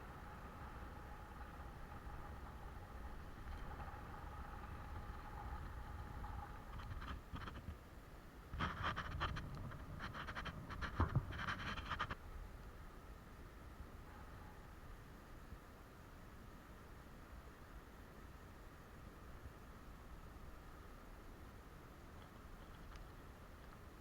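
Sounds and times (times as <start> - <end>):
close scraping and rustling: 0.0 - 7.8, 8.6 - 12.2
faint steady hum: 0.0 - 24.0.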